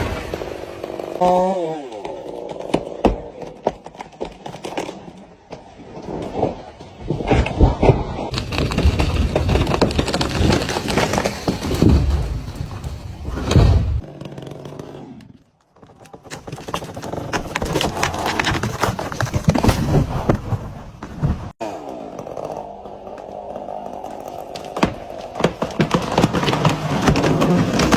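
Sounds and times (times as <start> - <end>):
wood cracking and snapping: 5.9 - 14.5, 15.6 - 21.6, 22.6 - 27.9.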